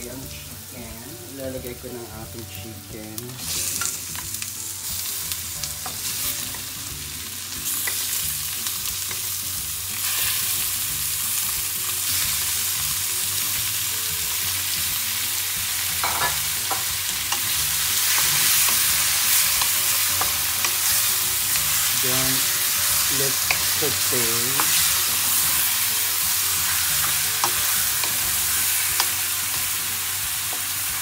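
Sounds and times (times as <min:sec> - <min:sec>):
chicken sizzling in hot oil: 0:00.0 - 0:31.0.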